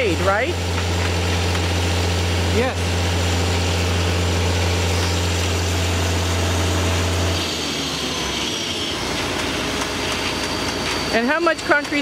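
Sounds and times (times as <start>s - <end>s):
truck engine running: 0.0s - 7.4s.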